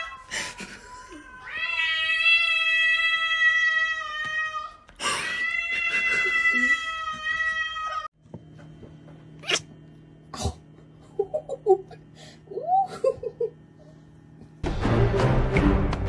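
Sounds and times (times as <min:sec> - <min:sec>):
cat yowling: 0:01.1 - 0:08.1
steady low hum: 0:08.2 - 0:15.0.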